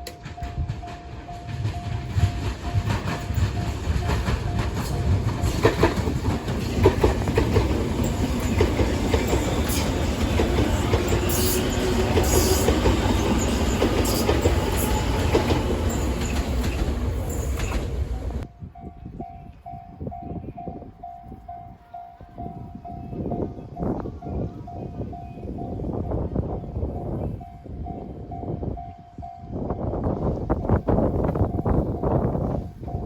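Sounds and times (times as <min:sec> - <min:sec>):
wheels clattering over rails: 0:00.0 - 0:18.4
train roaring past: 0:00.0 - 0:18.8
crossing warning bell ringing: 0:00.0 - 0:30.0.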